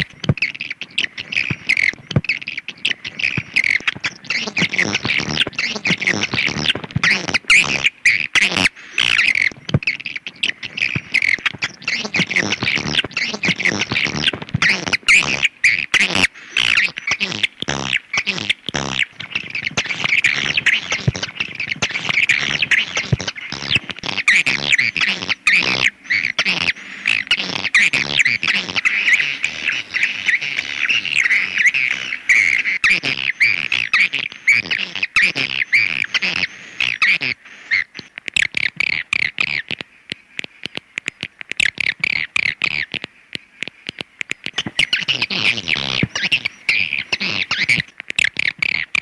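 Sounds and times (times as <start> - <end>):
swiftlets twittering chirps: 0.0 - 49.0
rapid sharp clicks: 38.0 - 46.3.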